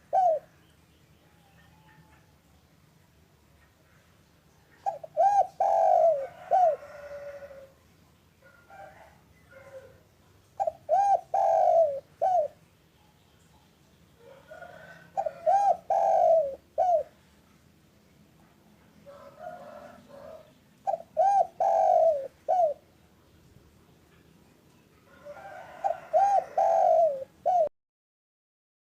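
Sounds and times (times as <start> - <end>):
dove cooing: 0.0 - 0.6, 4.8 - 7.8, 8.5 - 10.0, 10.6 - 12.6, 14.2 - 17.4, 19.0 - 22.9, 25.1 - 27.7.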